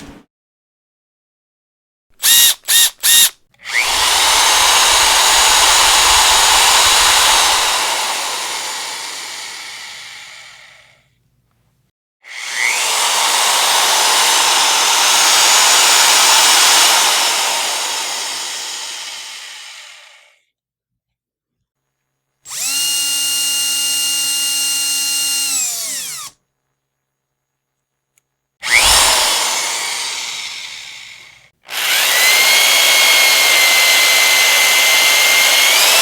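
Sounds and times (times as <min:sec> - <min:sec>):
electric power drill running: 0:02.2 - 0:10.9, 0:12.3 - 0:20.3, 0:22.5 - 0:26.4, 0:28.6 - 0:36.0.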